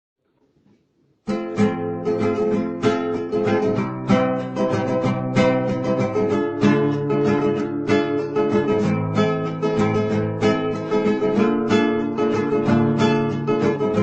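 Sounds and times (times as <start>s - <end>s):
strummed acoustic guitar: 1.3s - 14.0s.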